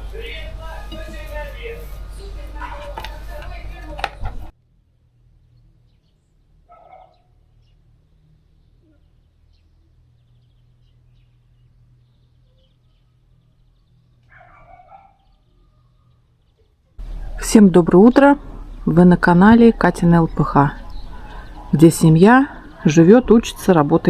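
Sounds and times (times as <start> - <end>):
faint low hum: 0.0 - 16.2, 17.0 - 24.0
small birds chirping faintly: 0.0 - 24.0
short bird calls: 17.0 - 24.0.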